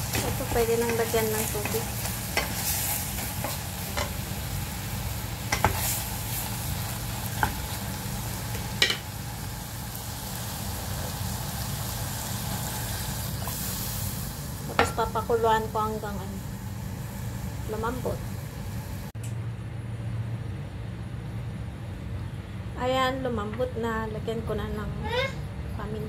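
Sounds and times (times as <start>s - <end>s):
meat sizzling in a pot: 0.0s - 19.1s.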